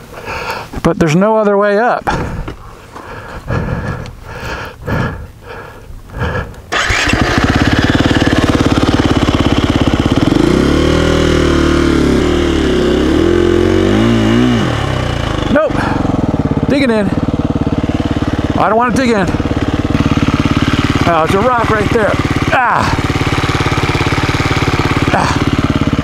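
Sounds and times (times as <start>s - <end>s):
dirt bike engine revving: 6.7s - 26.0s.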